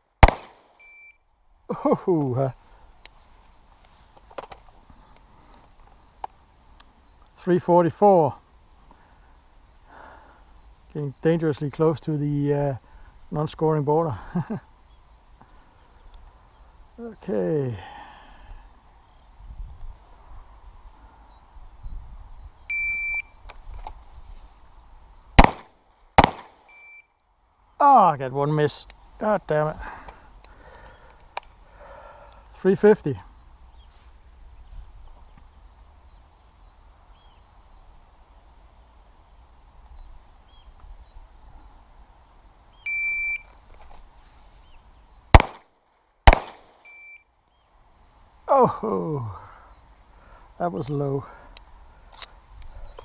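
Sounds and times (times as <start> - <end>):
pistol shots: 0.2 - 0.8, 25.4 - 26.7, 45.3 - 46.9.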